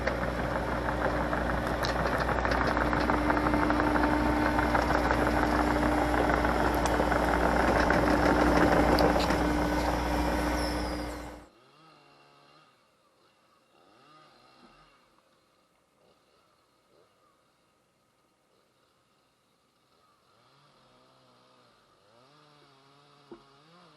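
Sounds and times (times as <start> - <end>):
excavator diesel engine running: 0.0 - 11.5.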